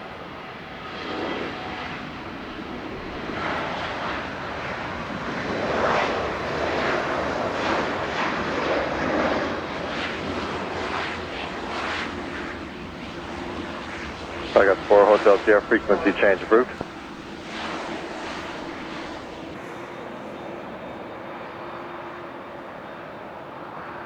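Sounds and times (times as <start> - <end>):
jet airliner engine: 0.0 - 24.0.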